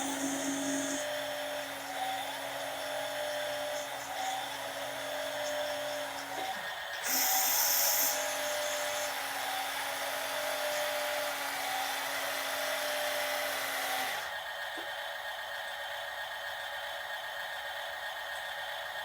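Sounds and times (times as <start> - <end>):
toy electric motor whining: 0.0 - 14.4.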